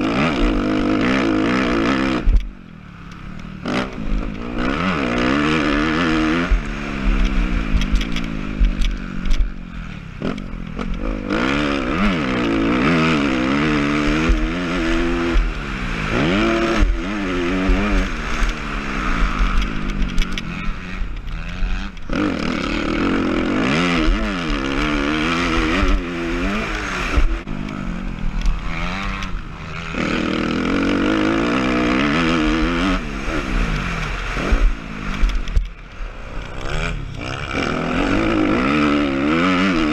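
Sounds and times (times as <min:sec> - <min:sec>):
motocross bike engine revving: 0:00.0 - 0:39.9
rattles: 0:07.1 - 0:11.4.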